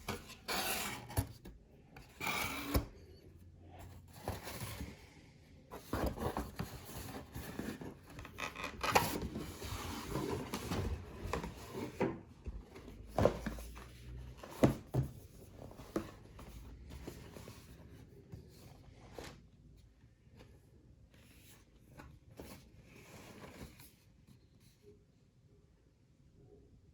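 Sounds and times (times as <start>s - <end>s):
box and wrapping rustling: 3.8s - 19.4s.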